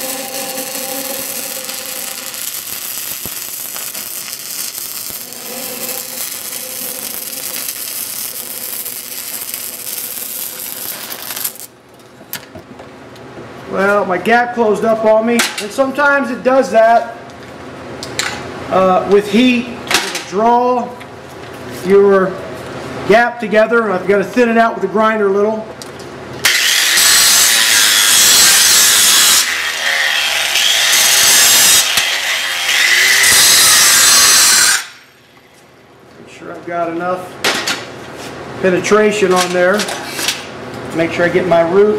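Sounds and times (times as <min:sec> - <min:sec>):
angle grinder grinding steel: 0:00.0 - 0:11.7, 0:26.4 - 0:35.0
welding arc crackling: 0:00.0 - 0:11.8, 0:26.4 - 0:35.2.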